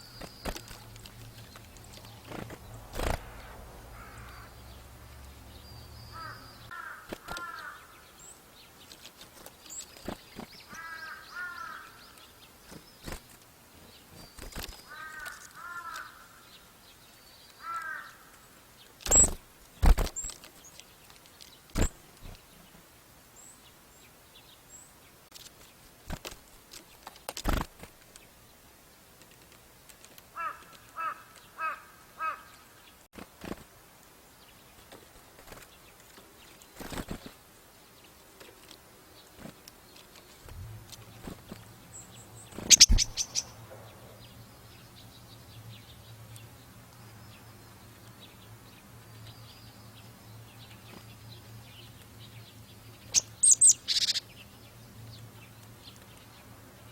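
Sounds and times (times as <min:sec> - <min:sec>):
faint high bird chirps: 0:41.9 - 0:46.1, 0:51.8 - 0:54.5
bird call notes: 0:42.0 - 0:44.2, 0:53.1 - 0:54.3.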